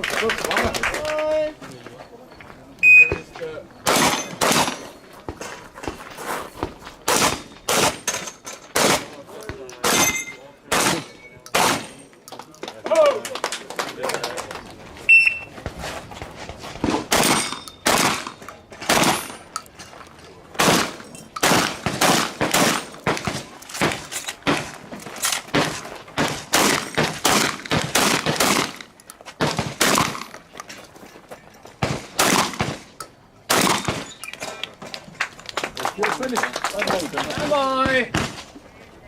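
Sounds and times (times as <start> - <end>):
shotgun shots: 3.8 - 4.9, 7.0 - 8.1, 8.7 - 9.2, 9.8 - 12.0, 16.8 - 19.4, 20.6 - 24.8, 25.5 - 30.4, 31.8 - 34.2.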